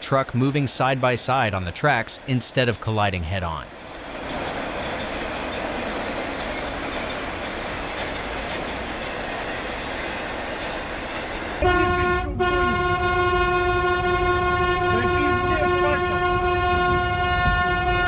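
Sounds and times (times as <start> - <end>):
train running rumble: 0.0 - 18.0
train horn: 11.6 - 18.0.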